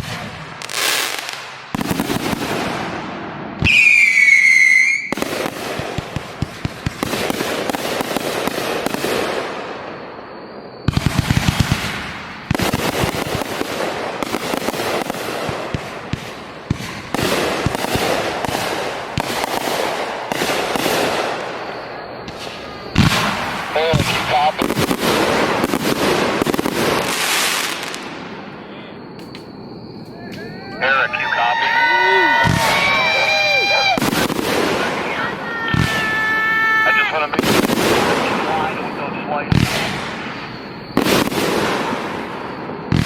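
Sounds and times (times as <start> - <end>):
fireworks crackling and popping: 0.0 - 10.0, 10.8 - 43.0
falling firework whistle: 0.0 - 43.0
sharp bangs: 10.9 - 31.2.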